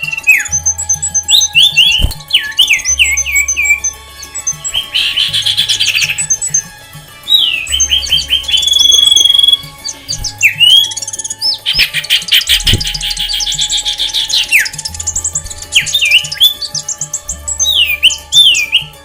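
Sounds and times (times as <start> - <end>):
background music with bass: 0.0 - 19.0
songbirds chirping and trilling: 0.0 - 19.0.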